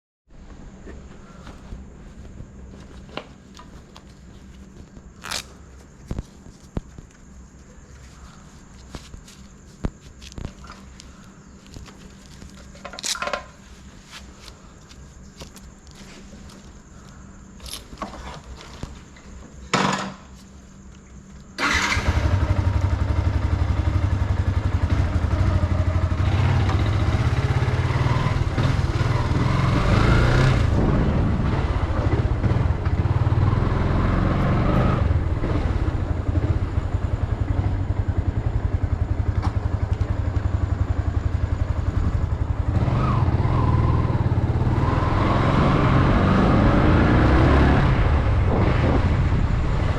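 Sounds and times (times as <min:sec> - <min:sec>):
motorcycle engine running: 0:21.6 - 0:49.9.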